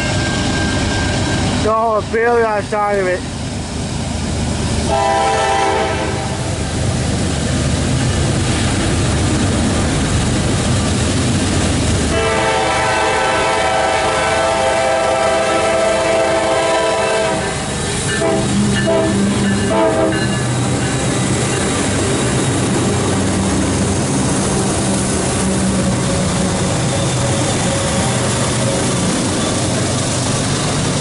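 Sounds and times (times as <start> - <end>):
diesel locomotives running: 0.0 - 31.0
rail noise from freight cars: 0.0 - 31.0
train horn blasts: 4.9 - 6.5, 12.1 - 20.3.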